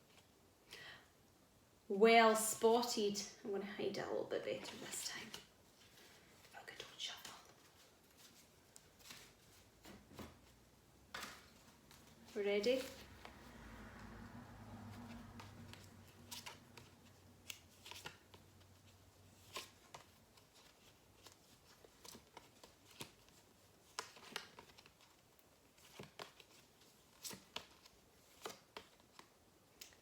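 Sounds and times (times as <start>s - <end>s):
paper flashcards flipping: 6.9s - 30.0s.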